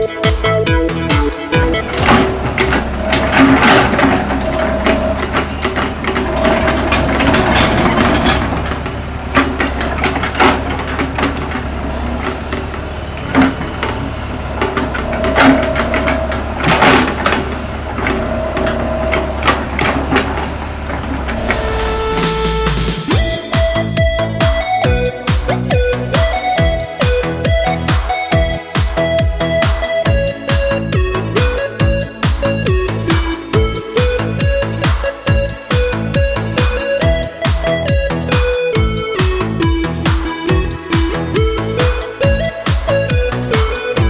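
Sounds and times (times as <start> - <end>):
hydraulic whine: 1.5 - 24.7, 25.5 - 44.0
excavator engine running: 1.5 - 44.0
sharp metallic clanks: 1.7 - 23.4.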